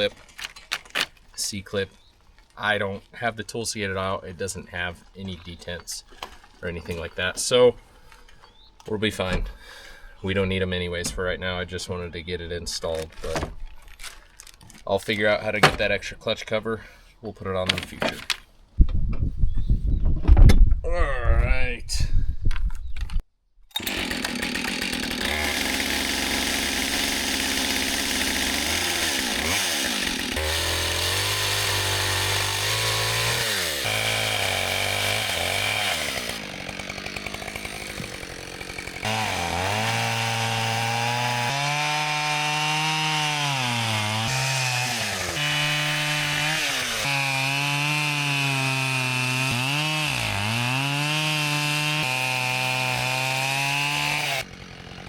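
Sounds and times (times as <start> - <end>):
chainsaw cutting wood: 0.0 - 1.2, 23.7 - 55.0.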